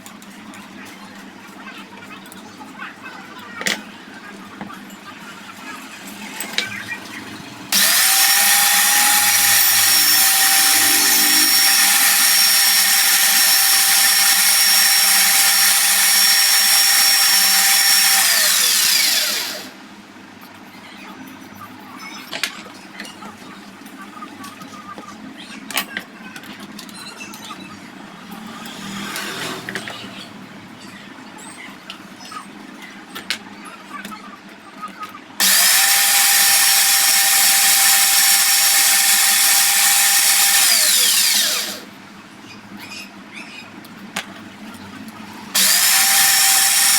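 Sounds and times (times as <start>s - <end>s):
power tool whining: 7.7s - 19.8s, 35.4s - 41.9s, 45.5s - 46.9s.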